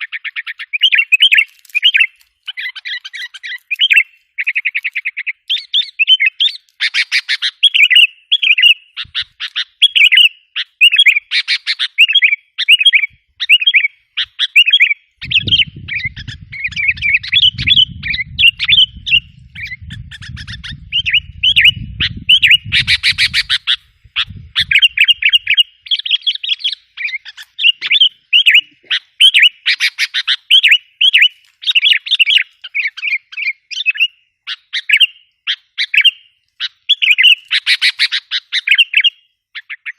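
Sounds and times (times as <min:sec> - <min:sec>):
bulbul chirping: 0:10.9 - 0:35.2
low rumble: 0:15.3 - 0:22.8.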